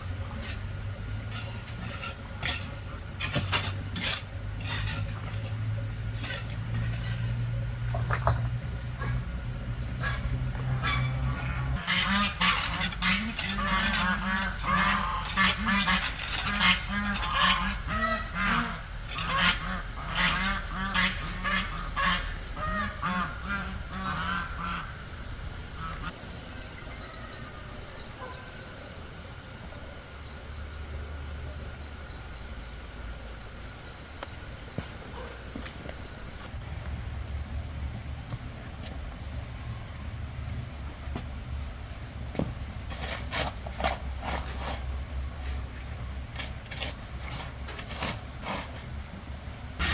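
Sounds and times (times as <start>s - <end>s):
geese honking: 10.8s - 24.9s.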